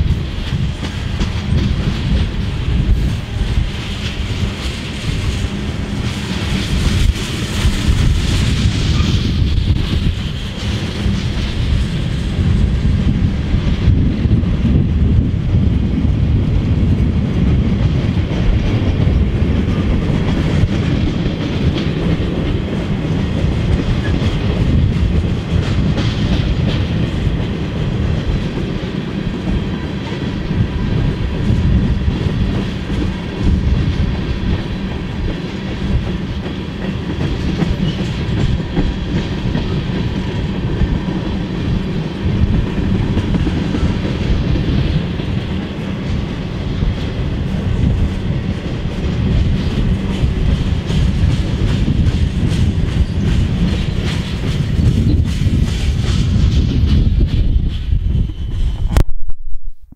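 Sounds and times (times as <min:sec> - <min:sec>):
steel wheels rumbling on rail: 0:00.0 - 0:59.0
wheels clicking over rail joints: 0:18.2 - 0:57.9.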